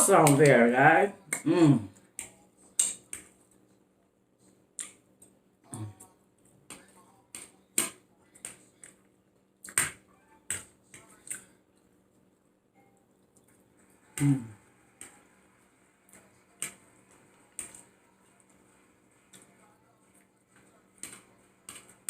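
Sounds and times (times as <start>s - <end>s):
person humming mm: 1.3s - 2.0s, 5.7s - 6.0s, 14.2s - 14.6s
wet chewing and lip smacking: 4.8s - 6.5s.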